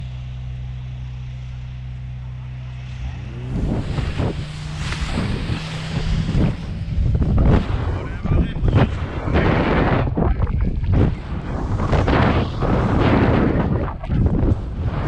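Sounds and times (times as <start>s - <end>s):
engine hum: 0.0s - 15.0s
wind buffeting microphone: 3.1s - 15.0s.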